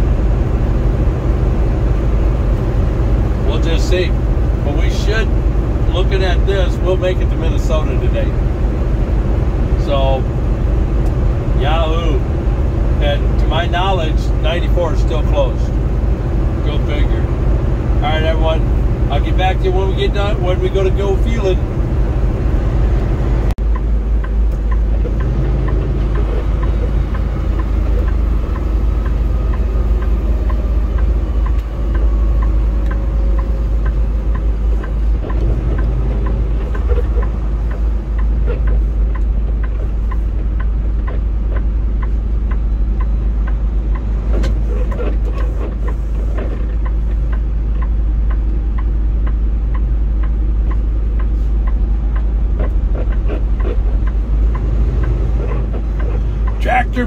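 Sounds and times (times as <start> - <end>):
truck engine and road drone: 0.0 - 57.0
light ticking: 23.0 - 57.0.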